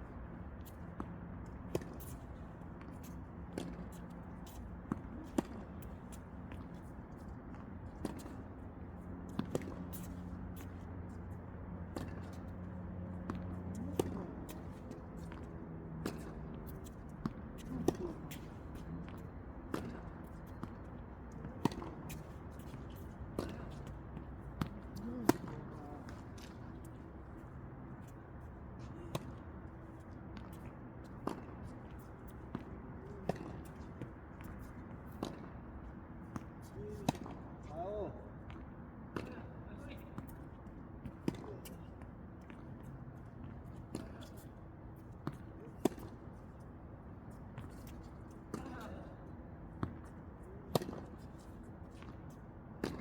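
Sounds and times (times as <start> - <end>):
tennis balls hit and bouncing: 0.8 - 27.6, 29.1 - 39.4, 49.8 - 52.2, 52.8 - 53.0
tennis balls struck and bouncing: 11.9 - 20.8, 21.6 - 26.6, 50.7 - 51.3.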